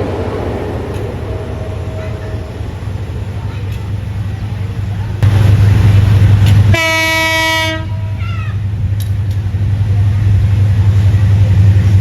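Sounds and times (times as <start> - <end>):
downward-sliding note: 0.0 - 5.0
low rumble: 0.0 - 6.5
train horn: 6.7 - 8.3.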